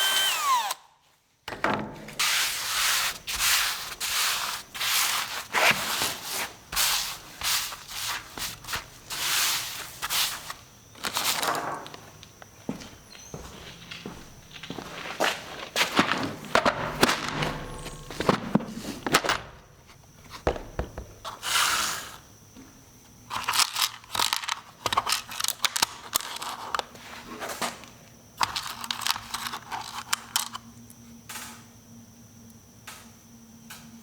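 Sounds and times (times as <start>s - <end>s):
tools clattering and scraping: 13.7s - 19.6s.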